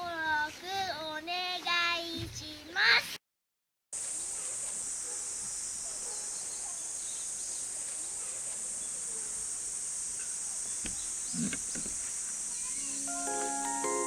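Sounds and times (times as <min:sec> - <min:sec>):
high-pitched insect chorus: 0:04.0 - 0:14.0
faint bird calls: 0:10.2 - 0:13.2.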